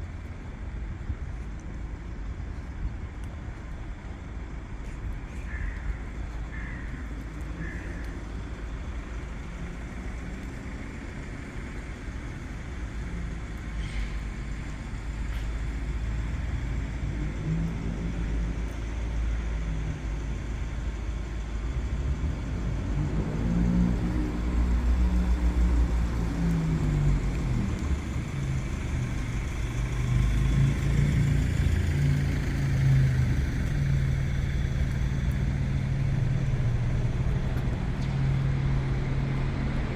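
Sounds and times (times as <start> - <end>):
low traffic rumble: 0.0 - 39.9
vehicles passing: 0.0 - 39.9.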